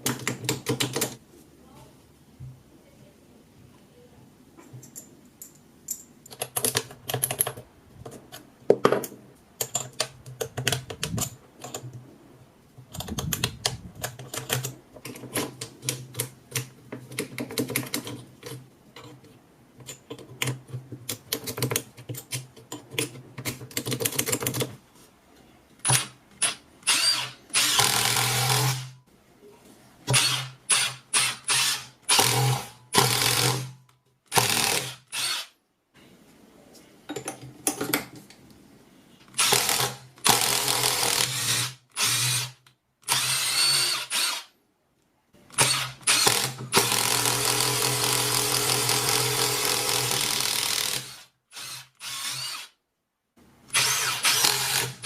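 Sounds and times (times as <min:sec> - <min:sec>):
electric screwdriver motor bursts: 0:25.9 - 0:28.9, 0:30.1 - 0:33.7, 0:34.3 - 0:35.5, 0:39.4 - 0:44.5, 0:45.6 - 0:52.8, 0:53.7 - 0:55.0.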